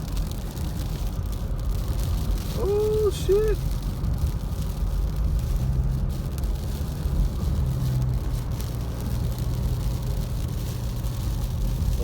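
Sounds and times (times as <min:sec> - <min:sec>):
car engine and road hum: 0:00.0 - 0:12.0.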